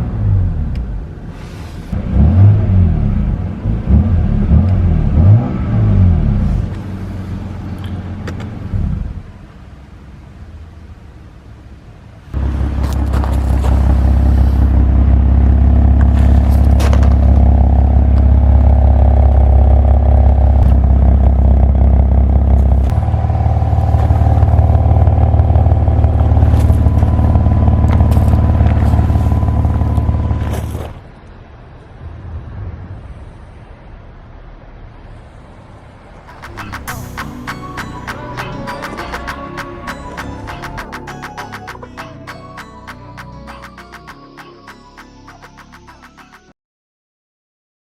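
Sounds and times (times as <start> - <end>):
car engine exhaust drone: 0.0 - 32.0, 33.1 - 38.6.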